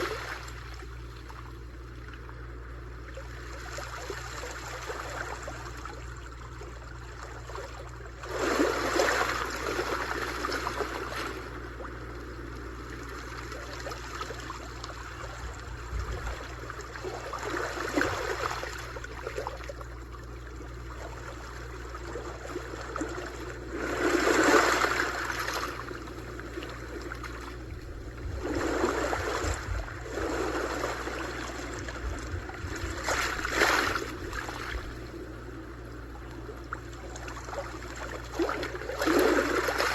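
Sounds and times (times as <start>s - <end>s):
waves breaking on shore: 0.0s - 1.4s, 7.5s - 12.1s, 12.7s - 20.1s, 21.0s - 35.8s, 36.6s - 39.9s.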